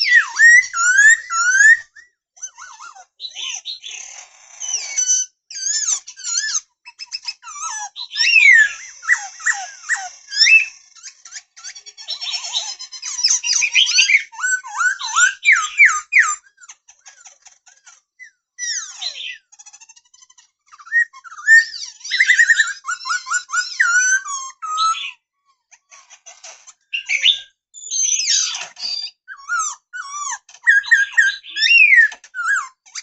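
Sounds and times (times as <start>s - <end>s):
bird singing whistles and trills: 0.0s - 2.2s, 7.2s - 10.8s, 12.1s - 16.4s, 20.7s - 25.2s, 26.9s - 32.7s.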